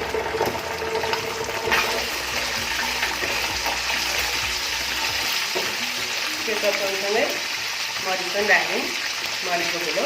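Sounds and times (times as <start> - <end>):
oil sizzling in a frying pan: 0.0 - 10.0.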